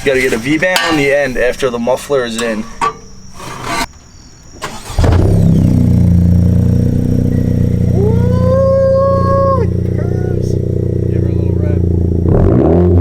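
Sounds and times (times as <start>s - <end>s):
car engine starting and idling: 4.5s - 13.0s
long pitched tone: 5.6s - 12.2s.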